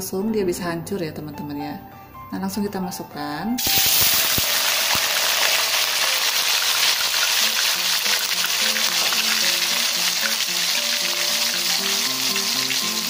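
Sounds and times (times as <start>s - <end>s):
faint background music: 0.0s - 13.0s
tofu sizzling in hot oil: 3.6s - 13.0s.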